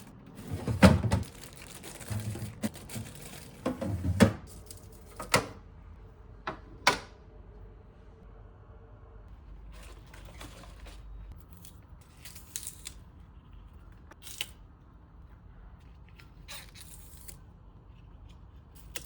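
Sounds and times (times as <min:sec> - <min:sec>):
kitchen items knocking and clacking: 0:00.0 - 0:05.6.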